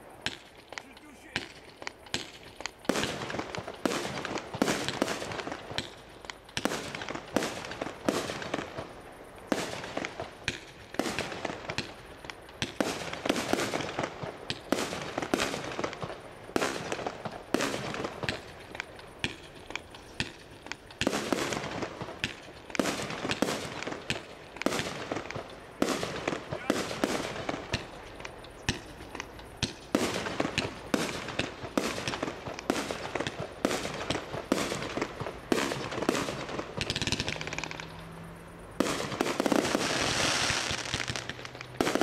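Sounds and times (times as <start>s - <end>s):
fireworks bangs: 0.0s - 38.1s, 38.8s - 42.0s.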